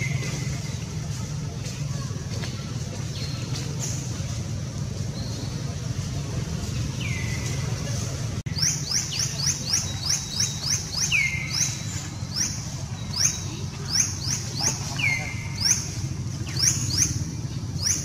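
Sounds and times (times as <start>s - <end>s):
bird chirps: 5.0s - 6.0s, 6.7s - 18.0s.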